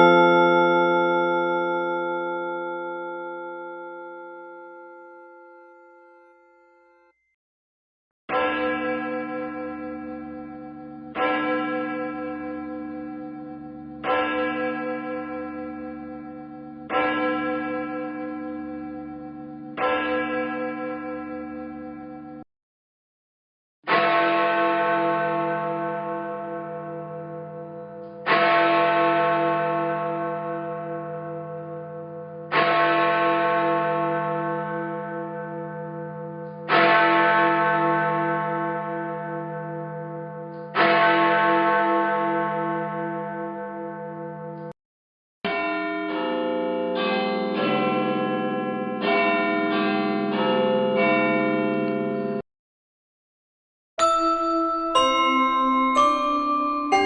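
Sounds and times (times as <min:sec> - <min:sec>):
large church bell tolling: 0:00.0 - 0:07.2, 0:08.3 - 0:22.4, 0:23.9 - 0:44.7, 0:45.5 - 0:52.4, 0:54.0 - 0:57.0
several bells ringing different notes: 0:00.0 - 0:07.4, 0:54.0 - 0:57.0.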